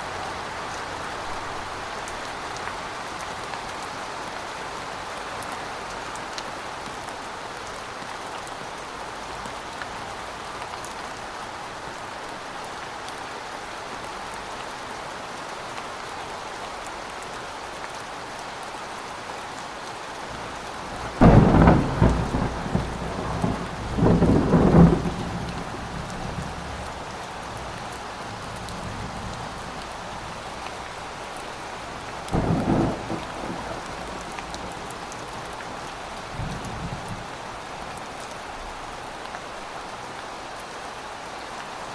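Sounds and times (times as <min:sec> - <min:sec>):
heavy rain: 0:00.0 - 0:41.9
thunder clap rumbling: 0:21.0 - 0:26.7, 0:32.3 - 0:34.8.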